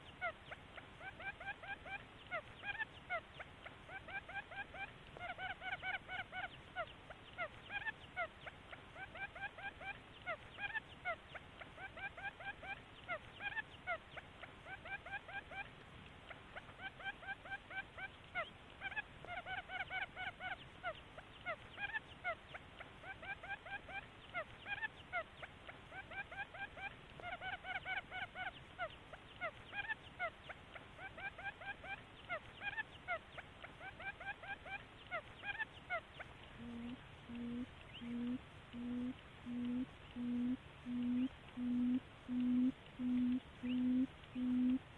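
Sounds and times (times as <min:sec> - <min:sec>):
bird rising chirps: 0:36.6 - 0:44.8
low hoots: 0:36.6 - 0:44.9.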